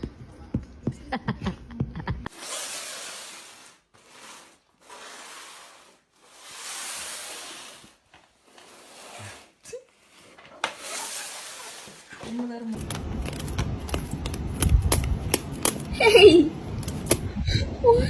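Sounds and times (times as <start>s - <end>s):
animal hissing: 2.3s - 7.9s.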